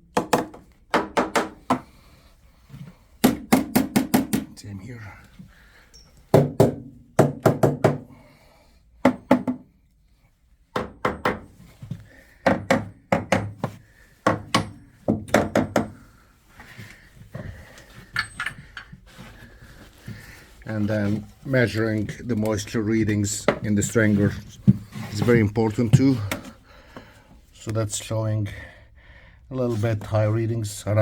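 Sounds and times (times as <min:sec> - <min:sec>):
hammer tapping hollow wood: 0:00.1 - 0:01.9, 0:03.2 - 0:04.5, 0:06.3 - 0:08.1, 0:09.0 - 0:09.7, 0:10.7 - 0:11.5, 0:12.4 - 0:16.0.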